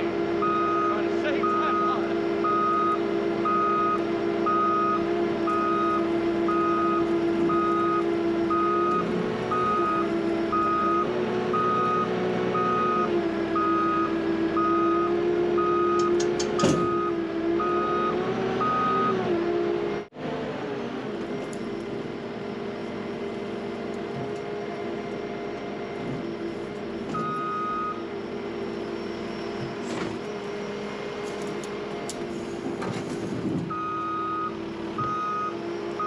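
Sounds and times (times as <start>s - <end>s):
diesel engine under load: 0.0s - 36.0s
backup alarm beeping: 0.4s - 15.0s, 15.6s - 19.2s, 27.2s - 28.0s, 33.7s - 35.6s.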